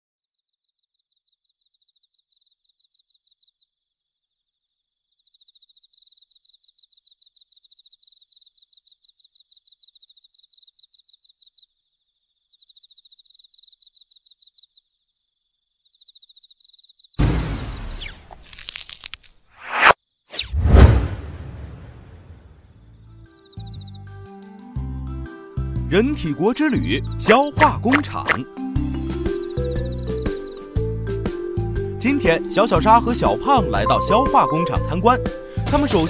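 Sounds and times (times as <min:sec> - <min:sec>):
insect chirping trill: 0:00.6 - 0:17.2, 0:27.2 - 0:30.8, 0:31.6 - 0:35.7.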